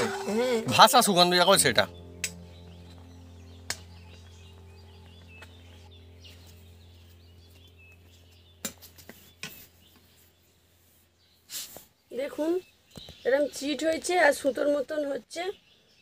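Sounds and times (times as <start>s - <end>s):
steady low hum: 0.0s - 12.1s
faint bird chirps: 0.0s - 16.0s.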